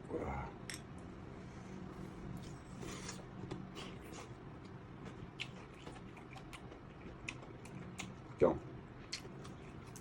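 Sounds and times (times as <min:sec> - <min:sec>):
low steady room hum: 0:00.0 - 0:10.0
chewing: 0:02.4 - 0:08.2.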